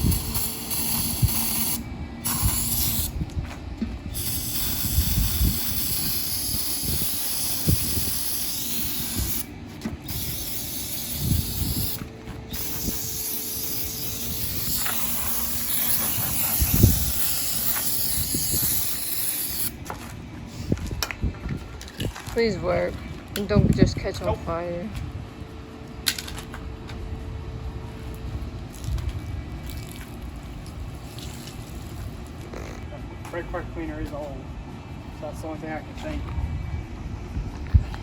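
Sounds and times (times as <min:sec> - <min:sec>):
aerosol can spraying: 0:00.0 - 0:03.1, 0:04.1 - 0:19.8.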